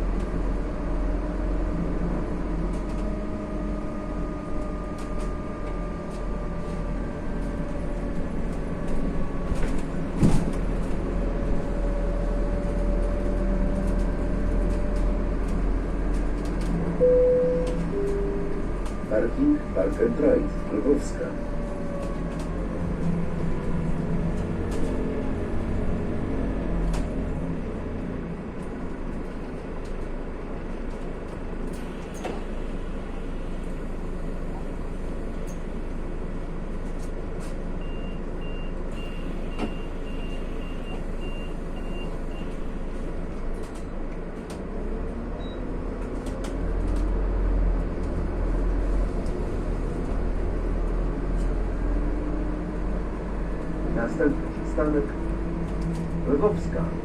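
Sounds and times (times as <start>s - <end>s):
bus engine rumble: 0.0s - 57.0s
short beeps: 17.0s - 19.8s.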